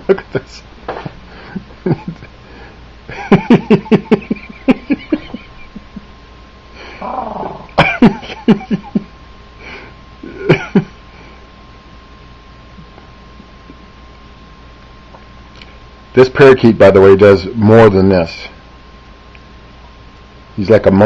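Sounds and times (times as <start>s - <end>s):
person laughing: 0.0s - 2.3s, 3.1s - 6.1s, 6.8s - 9.1s, 10.2s - 11.0s.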